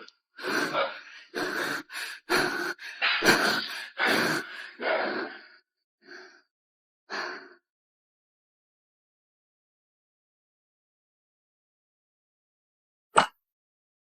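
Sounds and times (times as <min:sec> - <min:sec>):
person gasping and sighing: 0:00.4 - 0:06.4.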